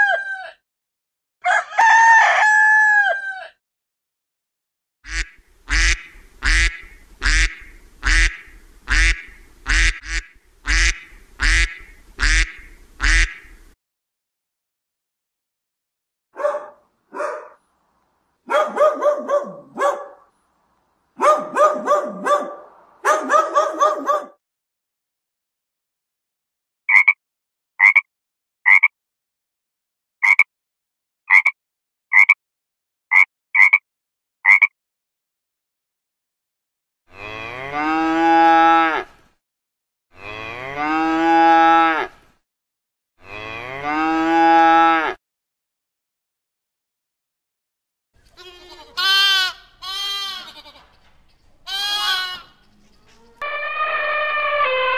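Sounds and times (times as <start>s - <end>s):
dog barking: 16.4s - 17.6s, 18.4s - 20.3s, 21.2s - 24.4s
cow mooing: 37.1s - 39.1s, 40.2s - 42.2s, 43.2s - 45.2s.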